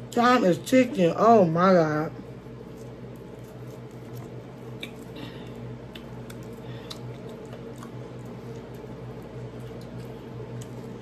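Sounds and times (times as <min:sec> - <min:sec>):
person chewing food: 0:02.2 - 0:11.0
wet mouth clicks: 0:04.7 - 0:05.1.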